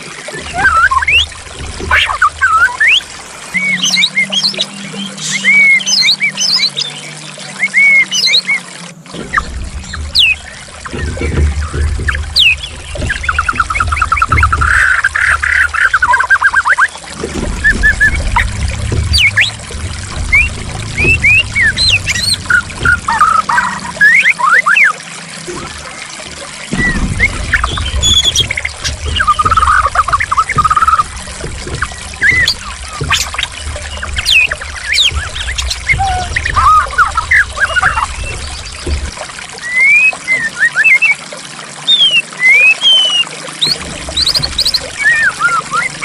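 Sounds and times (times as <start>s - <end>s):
trickling splashing water: 0.0s - 46.0s
bird singing whistled notes: 2.5s - 8.6s, 39.6s - 41.2s, 41.9s - 46.0s.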